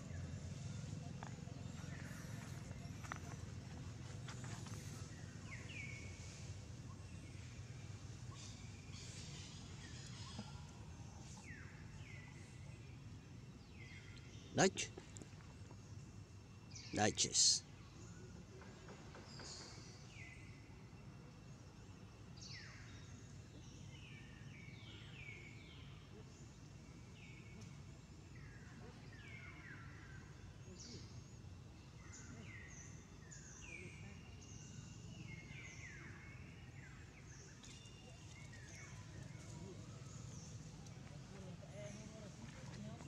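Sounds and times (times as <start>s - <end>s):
faint whistled birdsong: 0.0s - 43.0s.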